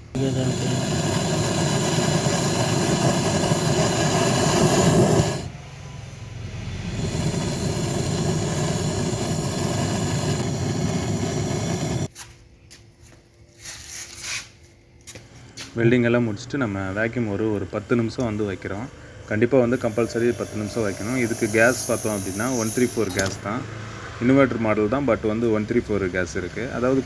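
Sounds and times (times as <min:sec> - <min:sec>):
loud steady machine noise: 0:00.2 - 0:05.5, 0:06.8 - 0:12.1.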